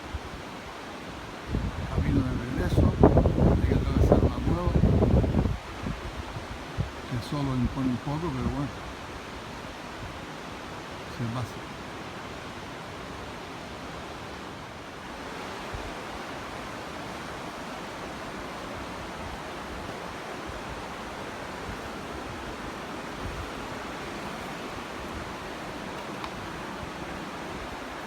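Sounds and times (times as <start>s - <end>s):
falling water rushing: 0.0s - 28.0s
wind thumps on microphone: 1.5s - 7.0s, 18.7s - 28.0s.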